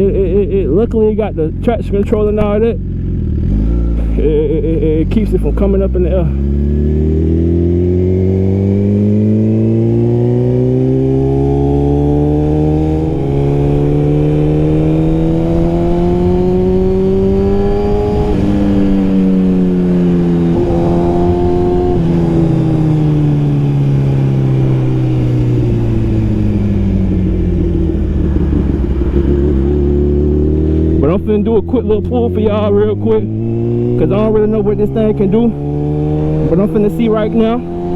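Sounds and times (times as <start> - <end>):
motorcycle engine revving: 0.0 - 37.9
wind rush: 13.1 - 31.0.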